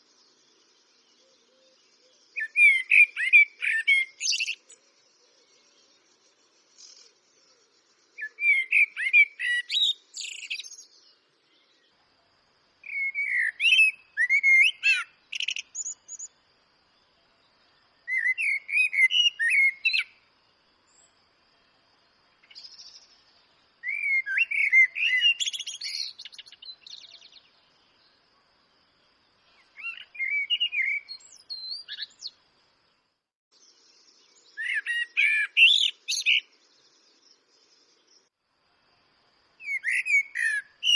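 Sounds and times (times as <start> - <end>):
blackbird singing: 0.3 - 6.0, 6.7 - 12.0, 12.8 - 16.4, 17.3 - 20.2, 22.3 - 28.2, 29.4 - 32.4, 33.6 - 38.3, 39.6 - 40.9.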